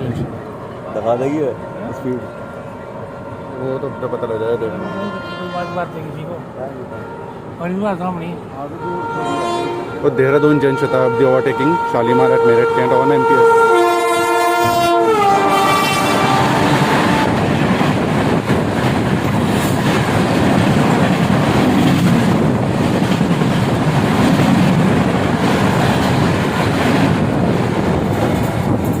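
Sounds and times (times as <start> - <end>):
train horn blast: 3.1 - 6.2, 6.8 - 7.5, 8.6 - 17.5
train wheels clattering on rails: 15.6 - 29.0.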